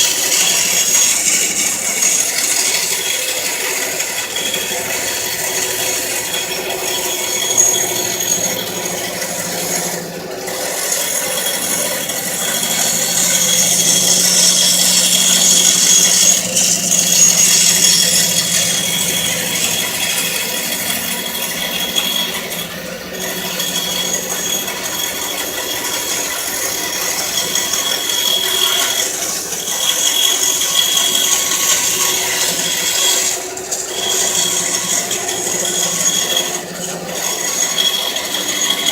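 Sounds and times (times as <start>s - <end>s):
bandsaw cutting: 0.0s - 38.9s.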